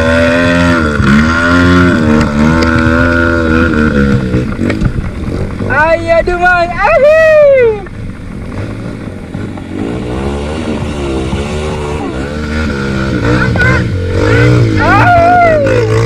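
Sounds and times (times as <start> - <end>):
motorcycle engine revving: 0.0 - 6.4, 7.8 - 16.0
person shouting: 6.4 - 7.9, 11.8 - 12.3, 13.2 - 14.0, 14.7 - 16.0.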